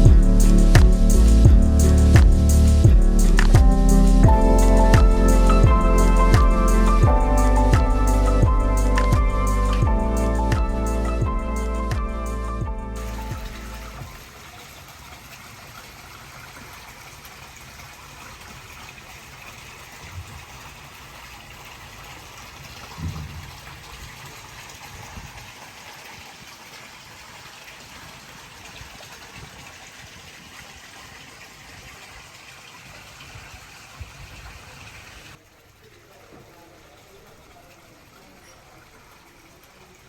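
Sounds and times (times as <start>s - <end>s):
rushing water: 0.0s - 40.0s
low thump: 0.1s - 13.7s, 23.0s - 23.8s.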